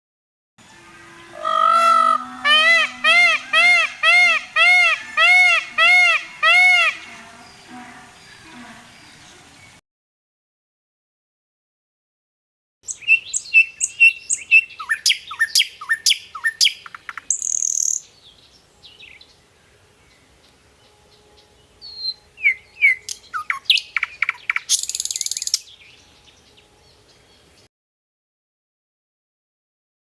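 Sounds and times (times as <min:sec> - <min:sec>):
songbird singing: 0:00.6 - 0:09.8, 0:12.8 - 0:27.7.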